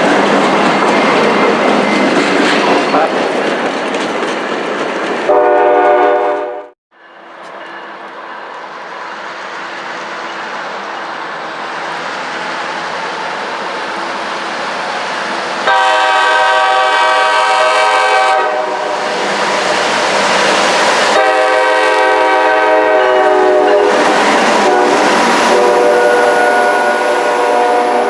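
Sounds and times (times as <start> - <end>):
passing train running noise: 0.0 - 28.0
train horn chord: 5.3 - 6.8, 15.7 - 19.1, 21.2 - 28.0.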